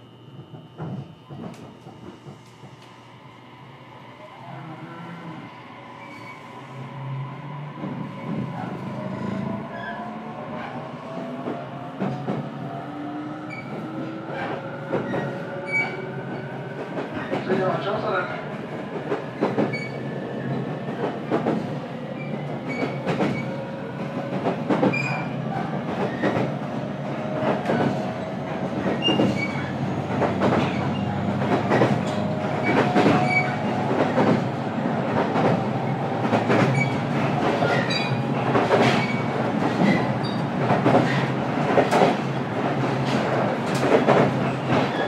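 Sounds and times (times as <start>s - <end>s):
train running rumble: 10.5s - 45.0s.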